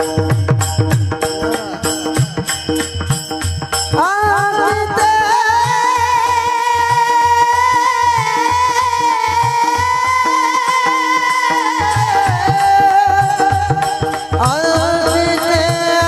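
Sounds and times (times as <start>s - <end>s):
drum rhythm: 0.0s - 16.0s.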